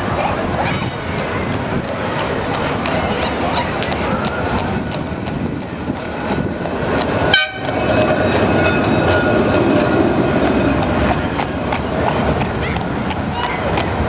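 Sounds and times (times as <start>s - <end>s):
running gear whine: 0.0s - 14.0s
tram rumbling past: 0.0s - 14.0s
tram horn toot: 7.1s - 14.0s.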